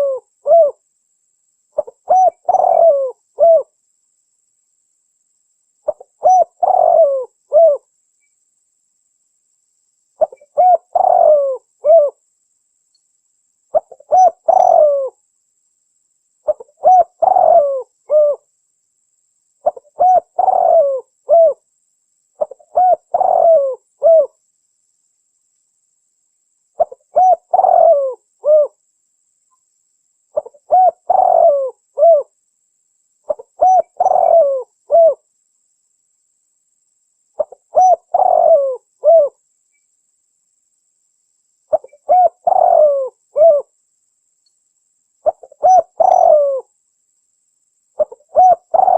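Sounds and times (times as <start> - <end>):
dove cooing: 0.0 - 0.8, 1.8 - 3.8, 5.9 - 7.9, 10.2 - 12.2, 13.7 - 15.2, 16.4 - 18.5, 19.6 - 21.6, 22.4 - 24.4, 26.8 - 28.8, 30.4 - 32.3, 33.3 - 35.2, 37.4 - 39.4, 41.7 - 43.7, 45.2 - 46.7, 48.0 - 48.9.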